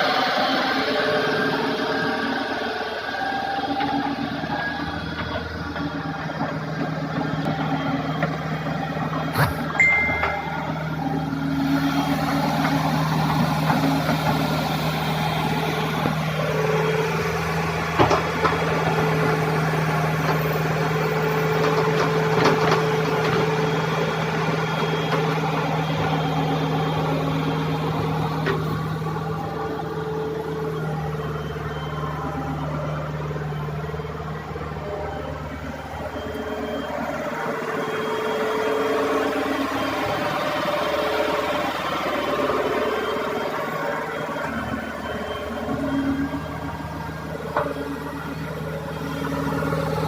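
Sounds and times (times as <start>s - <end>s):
excavator diesel engine running: 0.0s - 50.0s
higher steady tone: 9.4s - 12.4s.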